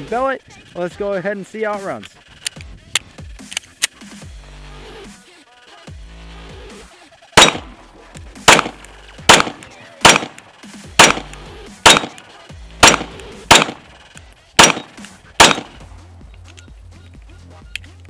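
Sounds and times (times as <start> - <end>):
pistol shots: 7.4 - 16.0.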